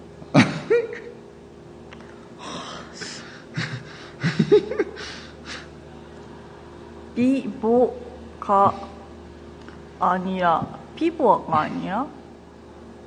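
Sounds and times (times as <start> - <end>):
steady low hum: 0.0 - 13.0
person laughing and gasping: 2.4 - 5.7.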